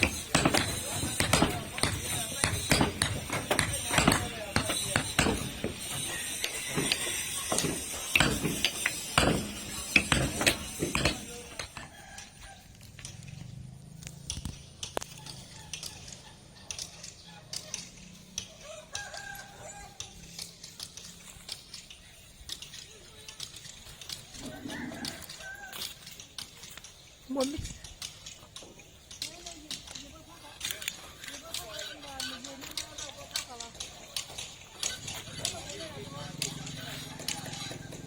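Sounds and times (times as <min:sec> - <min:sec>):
sharp knocks and taps: 0:00.0 - 0:11.9
rooster crowing faintly: 0:15.1 - 0:20.3, 0:24.4 - 0:26.2, 0:35.2 - 0:38.0.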